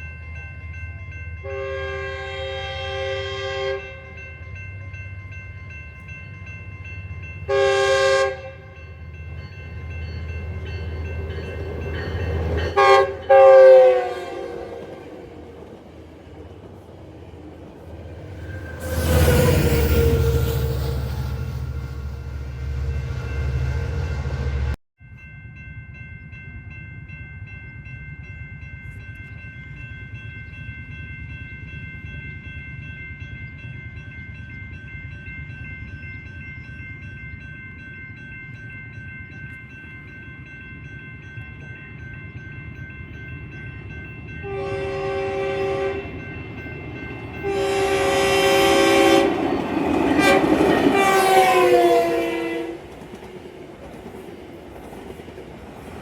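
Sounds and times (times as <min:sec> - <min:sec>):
train air horn blasts: 0:01.4 - 0:04.1, 0:07.5 - 0:08.8, 0:12.7 - 0:15.1, 0:44.4 - 0:46.2, 0:47.4 - 0:49.4, 0:50.1 - 0:52.9.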